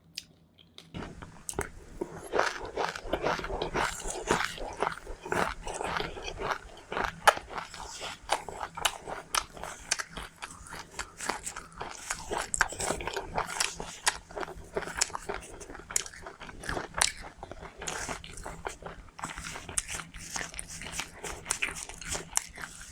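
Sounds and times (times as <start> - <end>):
person chewing crunchy seeds: 0.1 - 22.9.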